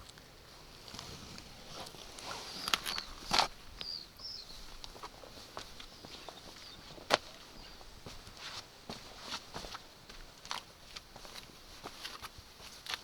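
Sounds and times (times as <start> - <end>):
footsteps and scuffs: 4.6 - 13.0.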